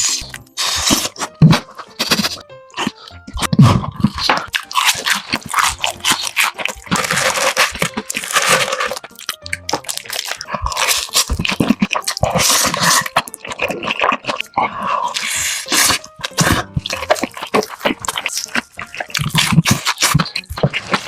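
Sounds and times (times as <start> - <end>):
background music: 0.0 - 21.0
person crunching and chewing food: 0.0 - 21.0.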